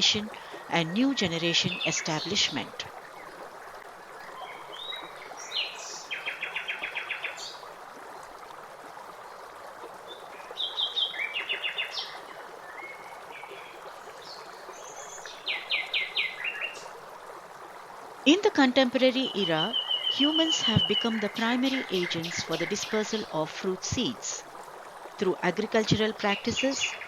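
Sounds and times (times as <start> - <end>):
songbird singing with trills: 19.2 - 24.3.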